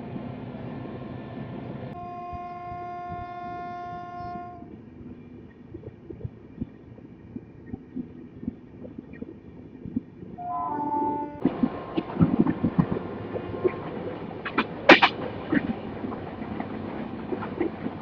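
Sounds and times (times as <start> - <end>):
train running on track: 0.0 - 18.0
train horn blast: 2.0 - 4.7, 10.4 - 11.4.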